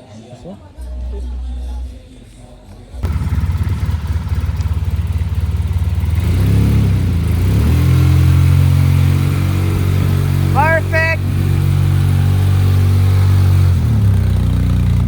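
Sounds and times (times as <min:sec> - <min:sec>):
quad bike engine running: 0:03.0 - 0:15.0.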